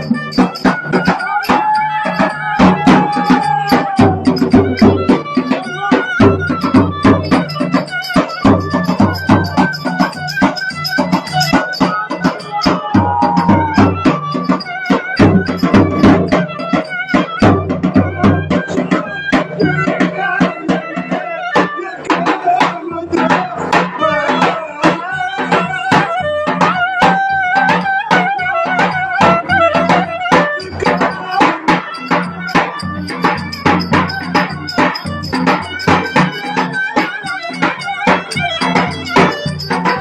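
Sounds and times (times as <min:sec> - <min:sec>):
fast drum beat: 0:00.0 - 0:20.6, 0:29.3 - 0:40.0
folk melody line: 0:00.0 - 0:40.0.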